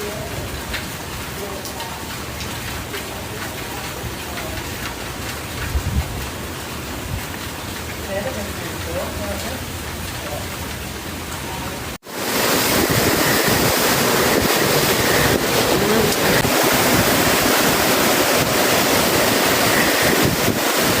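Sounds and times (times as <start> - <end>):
hurricane wind with rain: 0.0 - 21.0
wind buffeting microphone: 5.4 - 7.4, 12.2 - 21.0.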